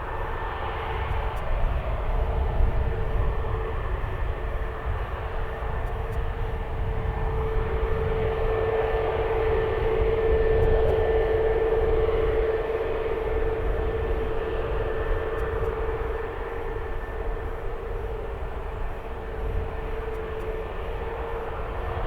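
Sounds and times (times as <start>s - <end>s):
airliner engines running: 0.0s - 22.0s.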